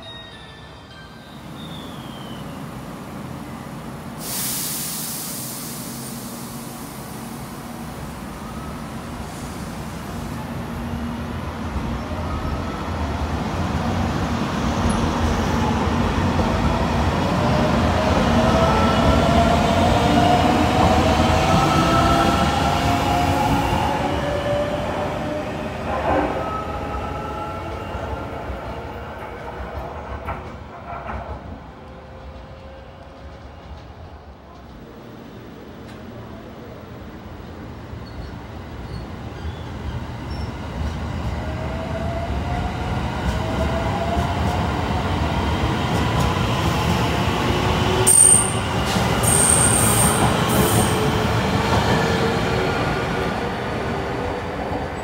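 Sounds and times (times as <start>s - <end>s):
air hiss: 4.1s - 8.3s.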